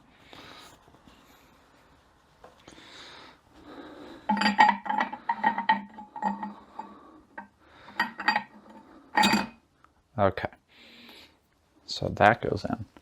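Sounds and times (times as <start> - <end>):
metal parts clinking: 4.3 - 6.6, 8.0 - 8.6, 9.2 - 9.6.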